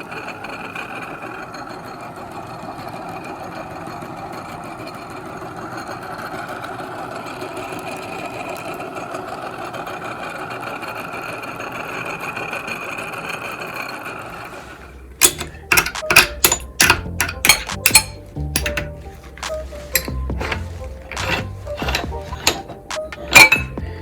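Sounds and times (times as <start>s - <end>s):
meat grinder motor whining: 0.0s - 15.2s
sharp clicks and clinks: 15.2s - 24.0s.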